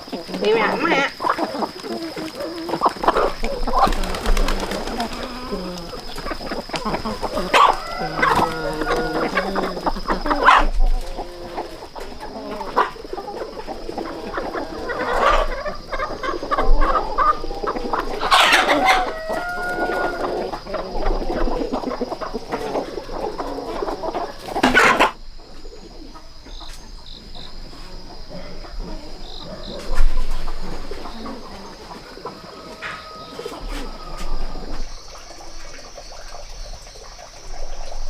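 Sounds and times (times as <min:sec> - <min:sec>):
chickens clucking: 0:00.0 - 0:38.0
rooster crowing: 0:07.1 - 0:11.6, 0:16.8 - 0:20.9, 0:32.2 - 0:34.7.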